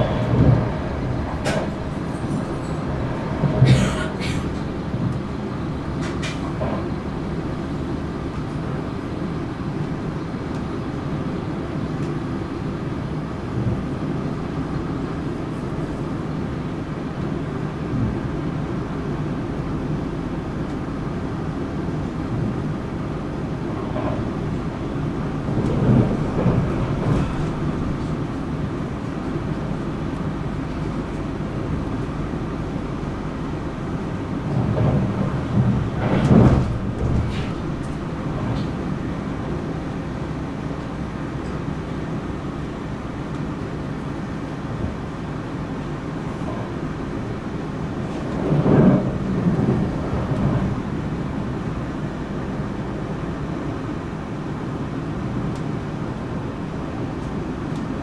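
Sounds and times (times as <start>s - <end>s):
clunks: 0.0s - 5.2s, 34.5s - 38.9s
train wheels rumbling: 0.0s - 58.0s.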